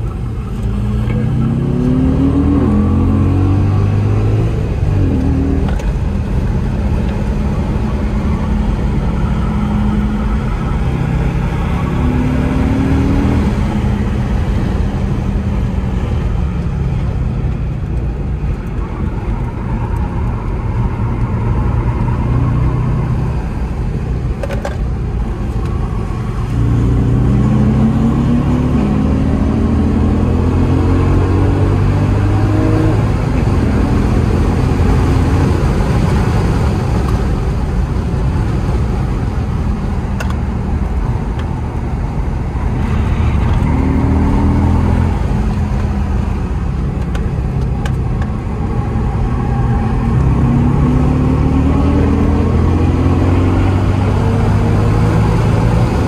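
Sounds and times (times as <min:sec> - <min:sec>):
car engine revving: 0:00.0 - 0:56.0
tyre and road noise: 0:00.0 - 0:56.0.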